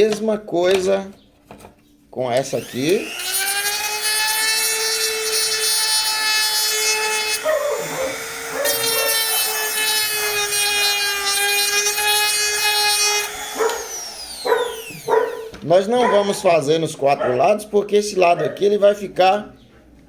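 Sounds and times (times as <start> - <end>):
rotary tool grinding whine: 2.5 - 16.5.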